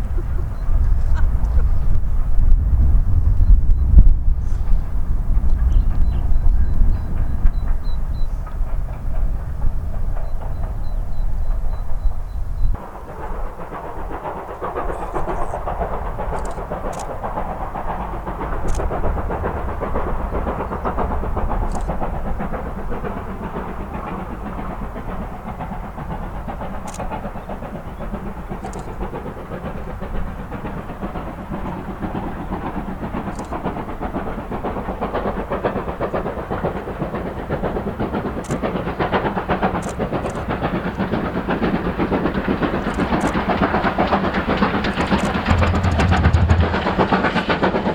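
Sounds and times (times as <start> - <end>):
steam train rumbling past: 0.0 - 47.9
sharp clicks: 16.3 - 17.2, 18.6 - 19.0, 21.6 - 22.0, 28.6 - 29.0, 33.3 - 33.6, 39.8 - 40.6, 42.8 - 43.5, 44.9 - 47.0.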